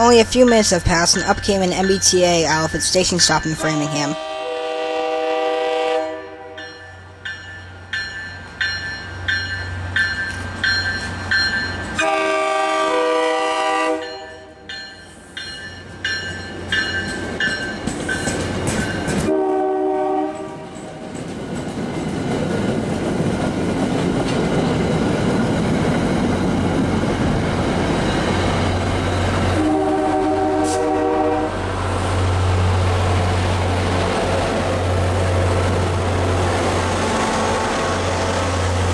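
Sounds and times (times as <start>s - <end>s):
crossing bell ringing: 0.0s - 4.2s, 6.2s - 12.2s, 14.0s - 19.3s, 28.0s - 31.0s
train wheel noise: 0.0s - 4.3s, 6.6s - 38.9s
train horn blasts: 3.6s - 6.8s, 12.0s - 14.5s, 19.2s - 20.8s, 29.5s - 31.6s
locomotive engine rumble: 20.4s - 38.9s.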